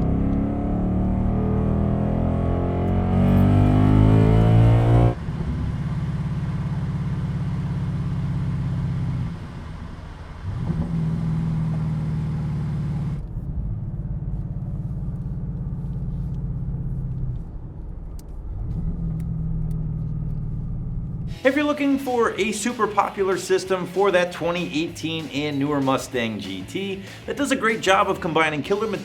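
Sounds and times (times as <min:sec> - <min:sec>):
car exhaust revving: 0:00.0 - 0:22.8
low exhaust note idling: 0:00.0 - 0:25.8.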